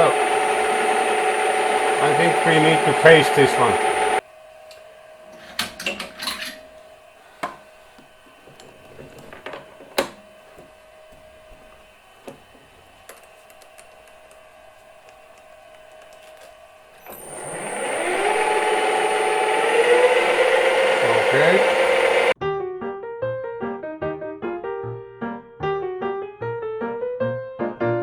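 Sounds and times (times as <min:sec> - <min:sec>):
lathe motor running with whine: 0:00.0 - 0:04.2, 0:17.0 - 0:22.4.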